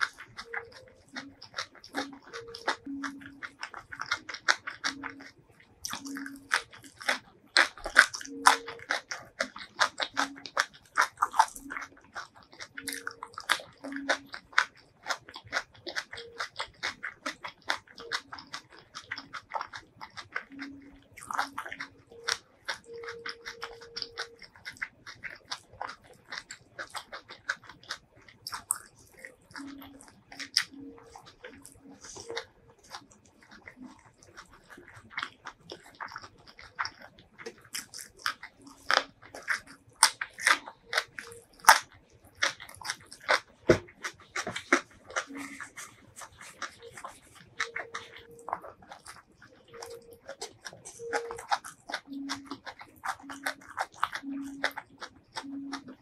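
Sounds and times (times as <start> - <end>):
crunching and wet chewing: 0.0 - 56.0
mouth clicks: 0.0 - 56.0.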